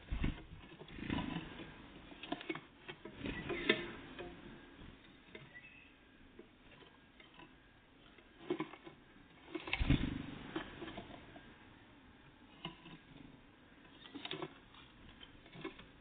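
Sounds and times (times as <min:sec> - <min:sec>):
faint bird chirp: 0:05.1 - 0:06.2
birds pecking and tapping: 0:12.6 - 0:16.0.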